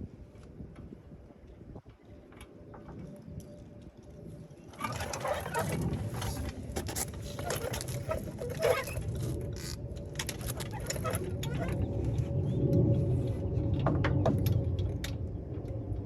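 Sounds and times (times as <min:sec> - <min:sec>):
low rumble: 0:05.0 - 0:16.0.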